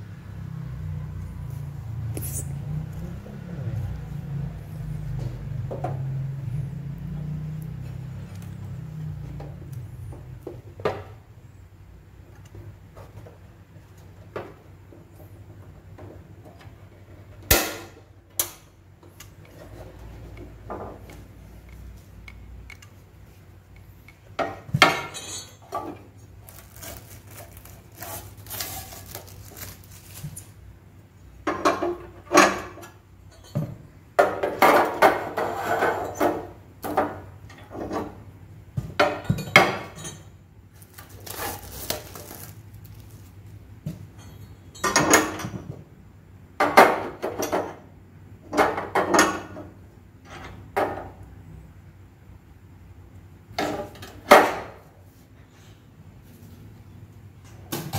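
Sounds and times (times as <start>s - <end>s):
rustling and scraping: 24.5s - 30.8s, 40.7s - 44.5s.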